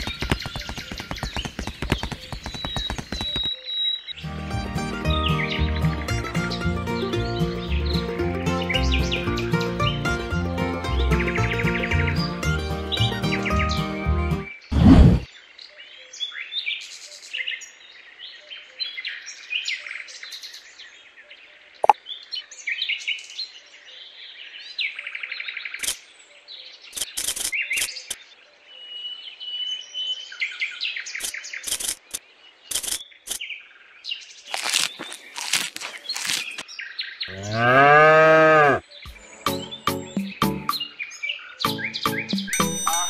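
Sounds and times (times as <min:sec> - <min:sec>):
sharp clicks and taps: 0:00.0 - 0:03.5
small birds chirping: 0:00.0 - 0:04.2, 0:14.5 - 0:42.6.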